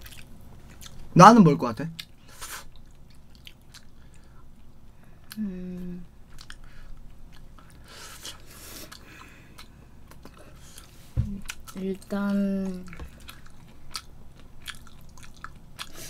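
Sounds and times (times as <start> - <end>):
fried chicken being chewed: 0.0 - 1.1, 1.9 - 5.5, 6.2 - 16.0
person humming: 5.4 - 6.1.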